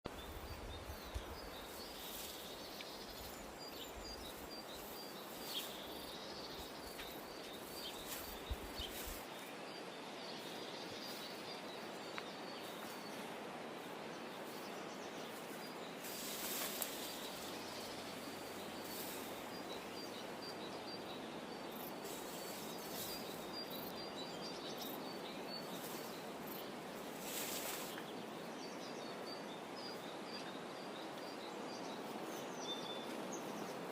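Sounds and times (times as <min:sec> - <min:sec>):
rustles: 0:00.1 - 0:28.8
steady hiss: 0:00.2 - 0:20.6, 0:21.6 - 0:24.0, 0:24.8 - 0:28.3.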